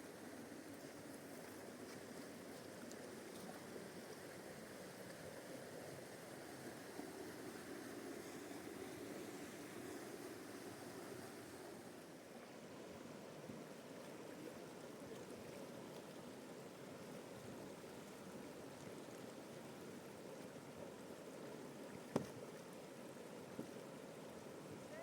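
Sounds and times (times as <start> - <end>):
river water rushing: 5.9 - 12.1.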